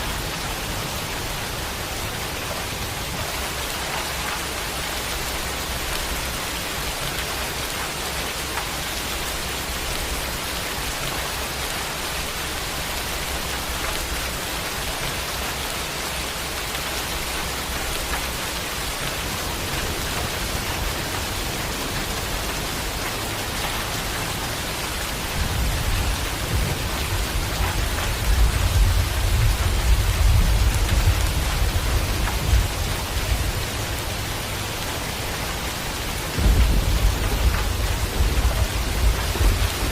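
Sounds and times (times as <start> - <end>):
heavy rain: 0.0 - 39.9
rolling thunder rumble: 17.1 - 34.7, 36.3 - 39.9.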